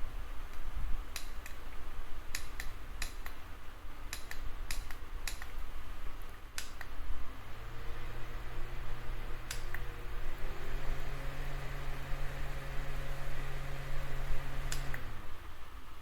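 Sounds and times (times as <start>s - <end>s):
sharp clicks and taps: 2.3s - 3.4s, 4.1s - 5.6s, 6.2s - 7.0s.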